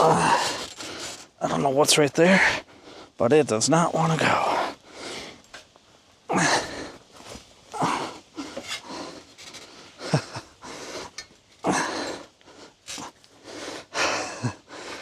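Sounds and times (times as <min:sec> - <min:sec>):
man grunting with effort: 0:00.0 - 0:00.5, 0:06.3 - 0:06.7, 0:07.8 - 0:08.2, 0:11.7 - 0:12.1
man breathing hard: 0:04.4 - 0:05.4, 0:06.3 - 0:07.0, 0:07.7 - 0:15.0.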